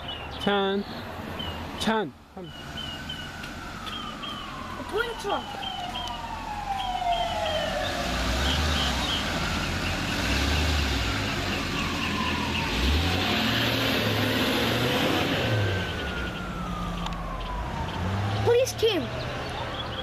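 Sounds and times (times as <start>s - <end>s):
large vehicle engine rumble: 1.0s - 20.0s
siren wailing: 2.4s - 10.1s, 10.8s - 19.8s
short high siren chirps: 2.5s - 9.3s, 11.3s - 13.0s, 15.6s - 18.6s.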